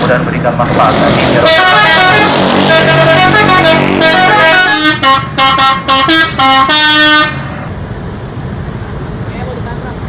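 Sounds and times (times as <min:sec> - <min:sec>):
vehicle hum: 0:00.0 - 0:10.0
multi-tone bus horn tune: 0:01.2 - 0:07.7.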